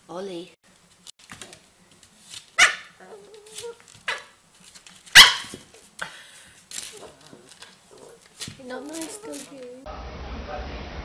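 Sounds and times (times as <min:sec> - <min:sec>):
dog barking: 0:02.6 - 0:03.2, 0:04.1 - 0:04.3, 0:05.1 - 0:05.6.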